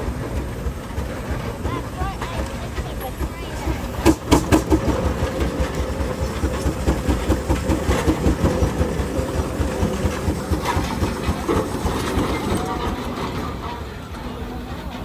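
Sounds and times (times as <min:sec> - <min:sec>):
steam engine exhaust chuffing: 0:00.0 - 0:15.0.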